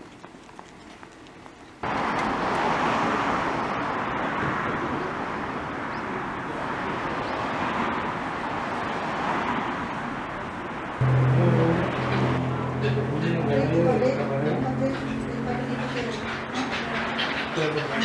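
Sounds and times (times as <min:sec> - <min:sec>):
passing vehicle rushing: 0:11.0 - 0:18.0.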